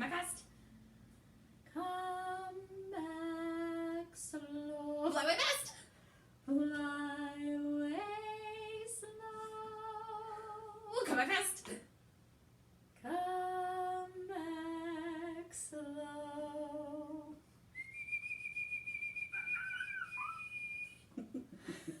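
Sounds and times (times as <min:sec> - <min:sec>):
high steady whistle: 0:17.7 - 0:21.1.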